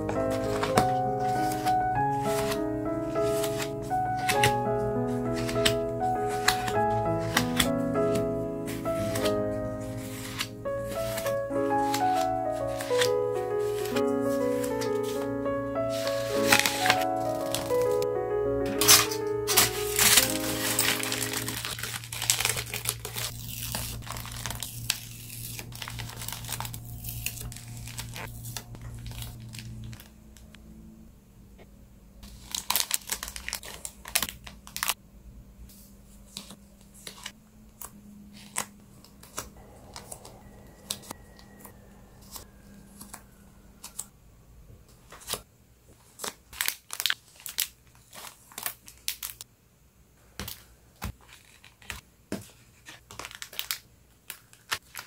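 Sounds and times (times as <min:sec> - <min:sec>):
packaging crinkling and tearing: 0:00.0 - 0:18.1, 0:18.7 - 0:30.5, 0:32.2 - 0:35.0, 0:45.1 - 0:49.5, 0:50.4 - 0:52.0, 0:52.6 - 0:55.0.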